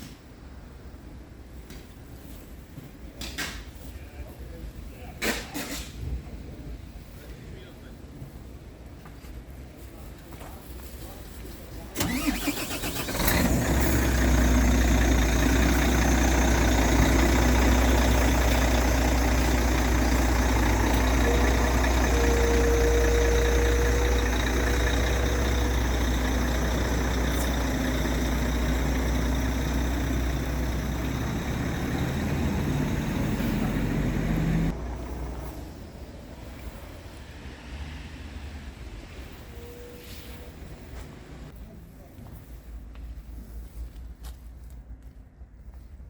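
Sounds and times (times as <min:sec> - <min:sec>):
diesel truck engine idling: 0:12.0 - 0:36.0.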